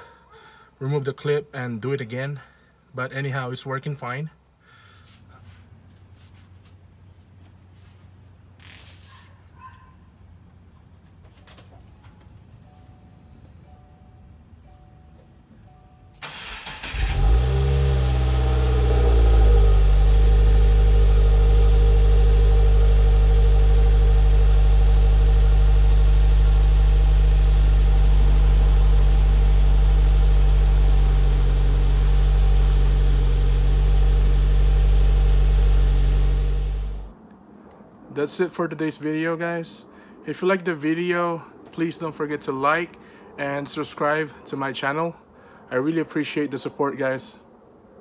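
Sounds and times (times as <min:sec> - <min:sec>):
starter motor cranking: 0:16.2 - 0:18.3
car engine revving and idling: 0:16.3 - 0:37.2.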